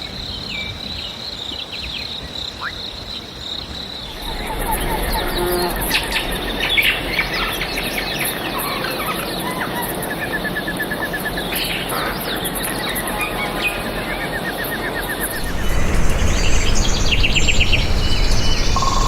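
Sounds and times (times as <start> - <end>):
high background hiss: 0.1 - 9.7, 10.5 - 19.0
wild birds chirping and whistling: 3.9 - 19.0.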